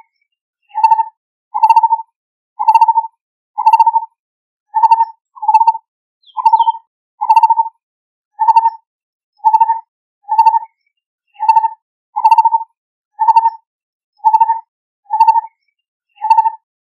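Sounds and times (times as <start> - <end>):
bird trilled call: 2.6 - 3.0, 3.6 - 4.0, 4.7 - 7.7, 8.4 - 8.8, 11.3 - 12.6, 13.2 - 13.6, 16.1 - 16.7.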